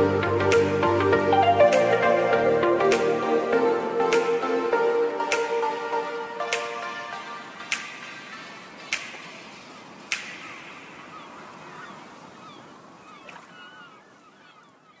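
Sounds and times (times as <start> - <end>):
birds chirping: 6.4 - 15.0
sharp cracks: 7.6 - 11.1.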